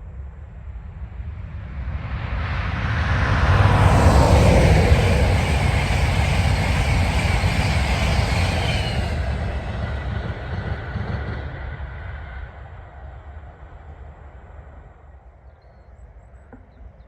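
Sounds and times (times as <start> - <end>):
train passing: 1.0 - 15.4.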